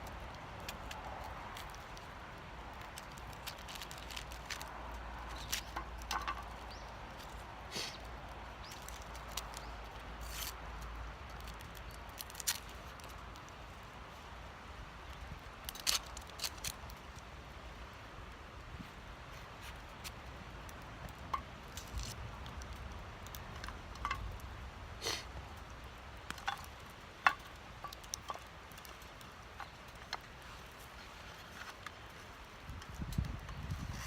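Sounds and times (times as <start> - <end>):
wood fire crackling and popping: 0.0 - 34.0
outdoor hiss: 7.5 - 8.8, 24.5 - 27.9.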